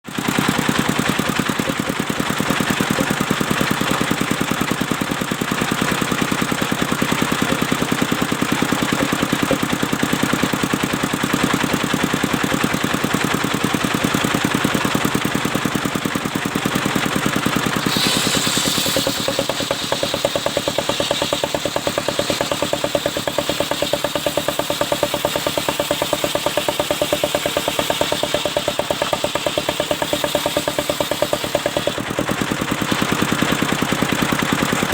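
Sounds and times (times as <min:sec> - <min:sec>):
sawmill engine running: 0:00.1 - 0:34.9
brief high hiss: 0:17.8 - 0:19.4.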